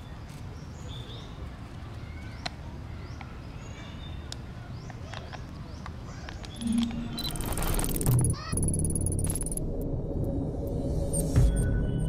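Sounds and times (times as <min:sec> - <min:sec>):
high bird chirps: 0:06.4 - 0:09.6
steady low rumble: 0:06.6 - 0:12.0.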